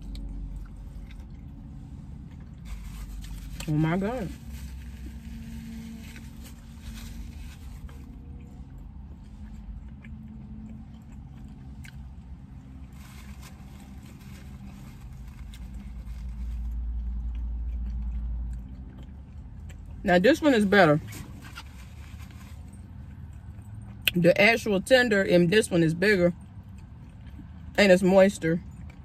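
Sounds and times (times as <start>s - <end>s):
person chewing food: 0.0s - 3.6s, 7.8s - 13.4s, 15.4s - 20.0s.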